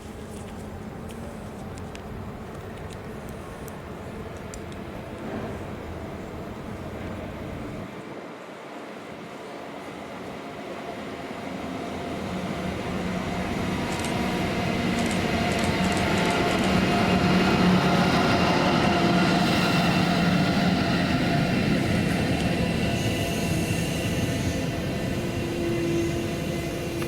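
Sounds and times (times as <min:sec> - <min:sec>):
passenger train passing: 0:00.0 - 0:27.0.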